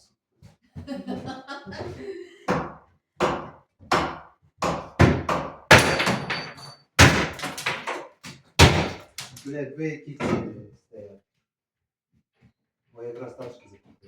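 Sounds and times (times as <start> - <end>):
hammer striking wood: 2.5 - 9.4.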